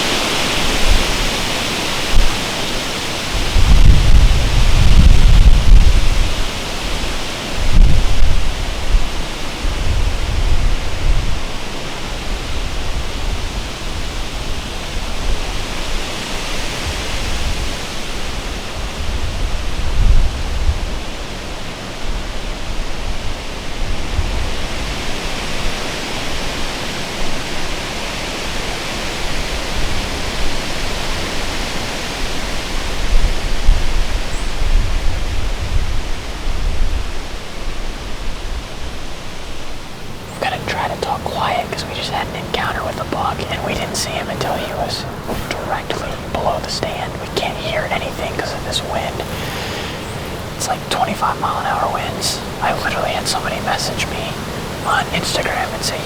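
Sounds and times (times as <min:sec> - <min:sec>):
wind buffeting microphone: 0:00.0 - 0:21.1
gusting wind through trees: 0:00.0 - 0:56.0.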